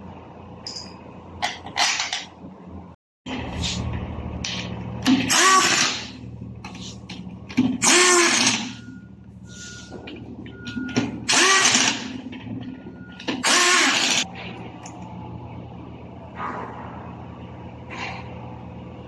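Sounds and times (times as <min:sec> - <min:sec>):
power tool whining: 0:11.3 - 0:12.2, 0:13.4 - 0:14.3
steady low hum: 0:14.2 - 0:19.0.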